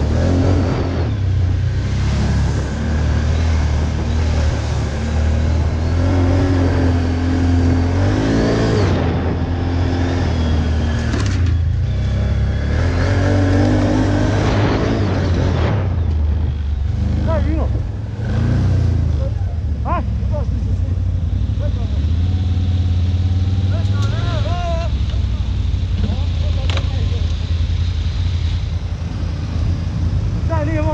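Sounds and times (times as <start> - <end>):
quad bike engine revving: 0.0 - 30.9.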